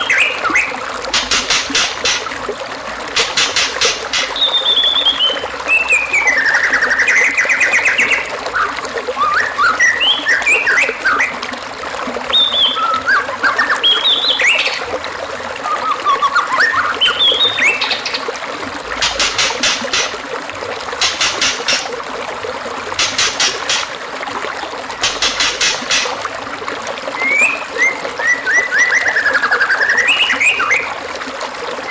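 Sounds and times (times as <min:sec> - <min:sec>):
running water trickling: 0:00.0 - 0:31.9
bird singing whistled phrases: 0:04.3 - 0:11.4, 0:12.3 - 0:14.8, 0:15.6 - 0:18.0, 0:27.2 - 0:30.9.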